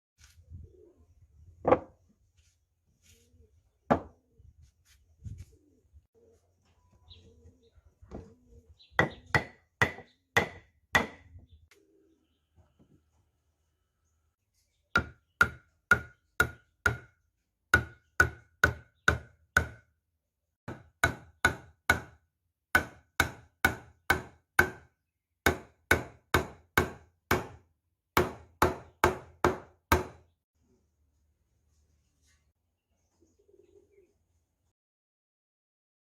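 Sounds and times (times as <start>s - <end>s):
tool knocking on wood: 1.6s - 1.9s, 3.9s - 4.1s, 9.0s - 11.2s, 22.8s - 24.8s.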